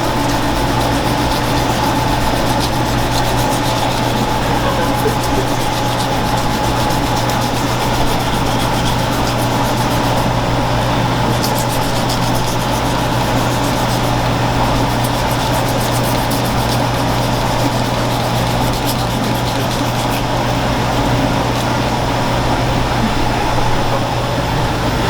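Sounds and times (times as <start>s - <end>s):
knife scraping fish: 0.0s - 10.3s, 11.2s - 20.6s
low mechanical hum: 0.0s - 25.0s.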